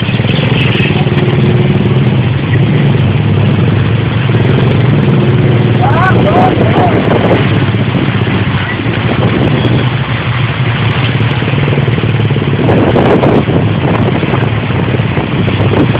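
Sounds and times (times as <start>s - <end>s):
vehicle engine running: 0.0s - 15.9s.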